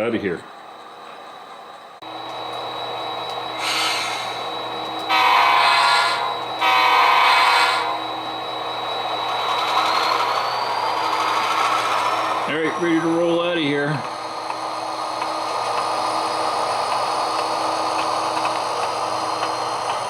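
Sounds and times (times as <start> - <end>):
model locomotive engine: 0.0 - 20.0
air hiss: 3.6 - 4.4
locomotive horn blasts: 5.1 - 8.0.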